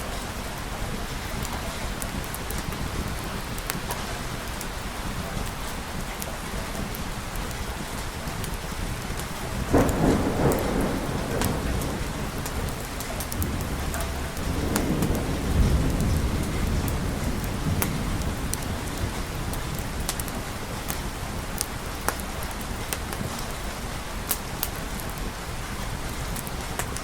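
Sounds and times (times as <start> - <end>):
thunder crack and rumble: 0.0 - 23.5
steady rain: 0.0 - 27.0
deep rolling thunder: 9.4 - 21.0.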